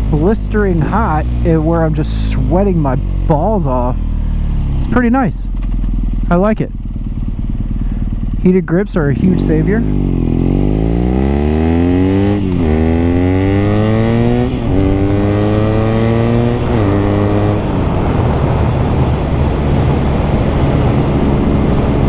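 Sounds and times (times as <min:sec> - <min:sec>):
motorcycle engine accelerating: 0:00.0 - 0:22.0
heavy wind noise: 0:11.7 - 0:22.0.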